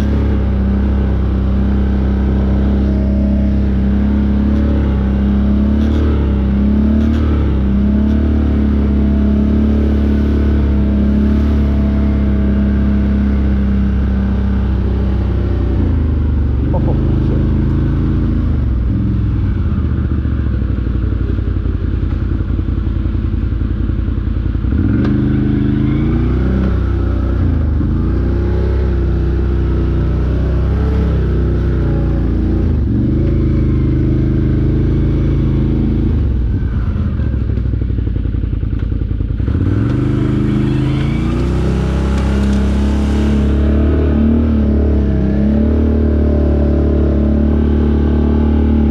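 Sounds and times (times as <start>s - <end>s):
off-road vehicle engine revving: 0.0s - 22.3s, 23.0s - 48.9s.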